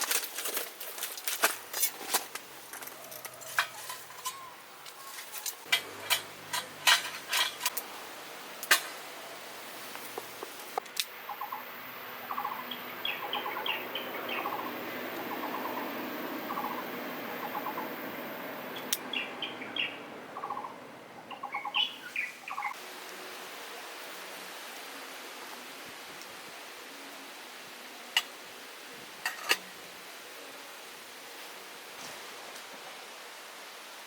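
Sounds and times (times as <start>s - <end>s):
cookware and utensils clinking: 5.3s - 7.8s, 29.2s - 29.7s
birds chirping: 11.2s - 22.8s.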